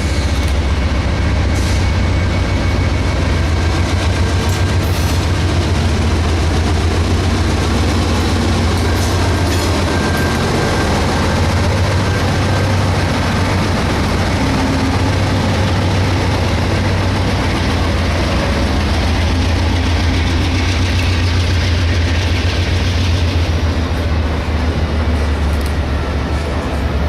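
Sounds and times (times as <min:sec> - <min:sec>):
train passing: 0:00.0 - 0:27.0.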